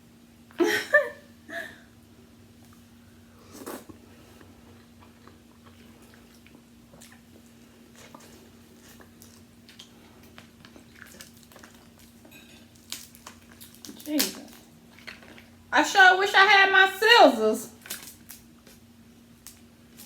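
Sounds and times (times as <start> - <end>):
steady low hum: 0.0 - 20.0
person chewing food: 3.4 - 15.6
small clicks and crackles: 8.0 - 15.5, 17.8 - 18.8, 19.4 - 20.0.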